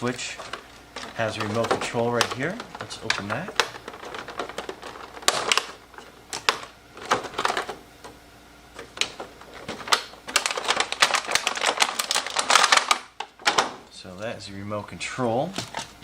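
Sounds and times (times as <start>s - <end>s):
packaging being opened: 0.0s - 7.8s, 8.8s - 13.7s.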